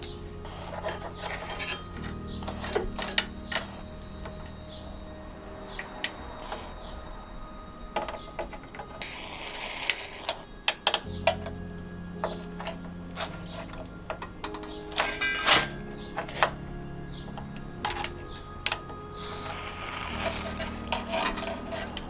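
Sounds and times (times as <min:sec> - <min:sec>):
steady low hum: 0:00.0 - 0:22.0
hand tools tapping metal: 0:12.2 - 0:16.6.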